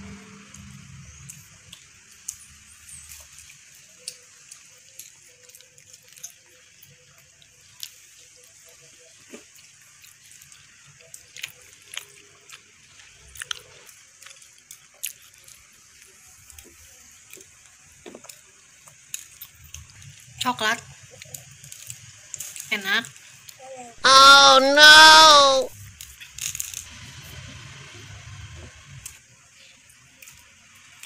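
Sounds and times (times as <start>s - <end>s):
child chewing with lip smacks: 1.2s - 20.3s.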